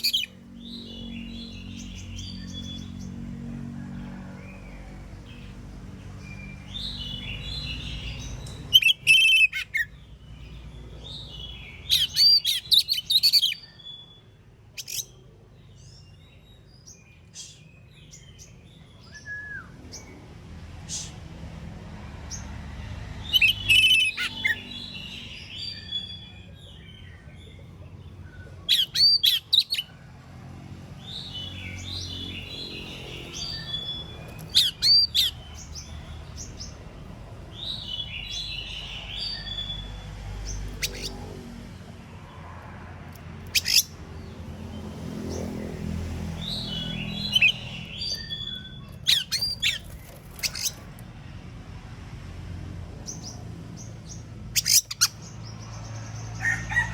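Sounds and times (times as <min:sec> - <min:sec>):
bird singing whistles and chatter: 0:28.4 - 0:29.9, 0:33.3 - 0:35.4, 0:46.5 - 0:50.8, 0:54.6 - 0:55.2.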